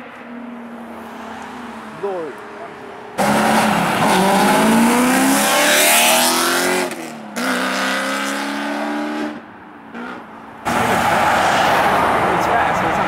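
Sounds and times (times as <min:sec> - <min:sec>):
sports car engine accelerating: 0:03.2 - 0:09.4
loud steady rush of noise: 0:10.5 - 0:13.0.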